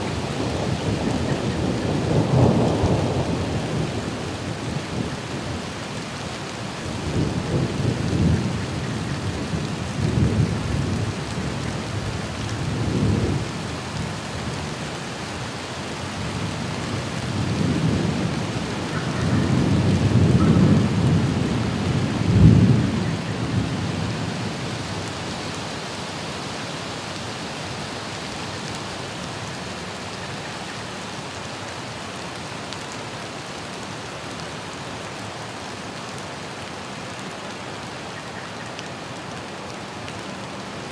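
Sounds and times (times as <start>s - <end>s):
steady rain: 0.0s - 40.9s
thunder rumbling: 0.1s - 5.3s, 16.3s - 25.1s.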